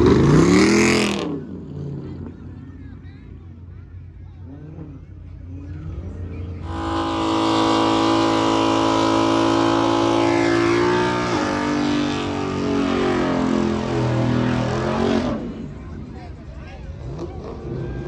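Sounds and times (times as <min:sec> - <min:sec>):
car engine revving: 0:00.0 - 0:02.6, 0:04.5 - 0:16.3.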